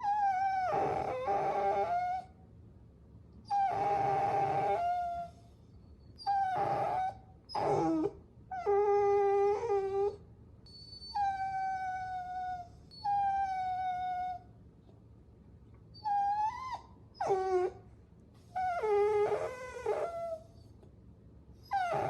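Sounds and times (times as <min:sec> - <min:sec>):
puppy whining: 0:00.0 - 0:02.4, 0:03.4 - 0:14.5, 0:15.9 - 0:20.9, 0:21.6 - 0:22.0.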